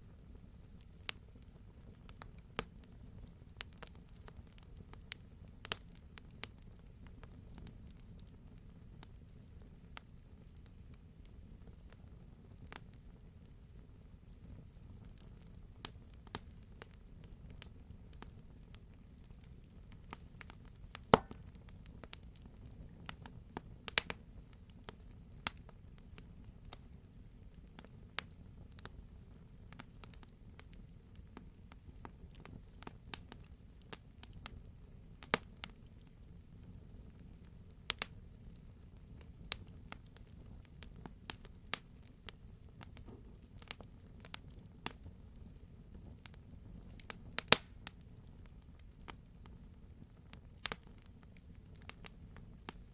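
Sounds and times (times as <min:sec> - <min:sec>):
campfire flames rumbling: 0:00.0 - 0:52.9
logs crackling and popping: 0:00.1 - 0:52.9.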